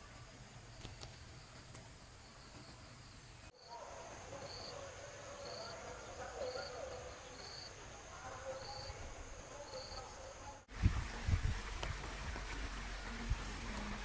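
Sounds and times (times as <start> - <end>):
faint low wavering insect calls: 0.0 - 10.6.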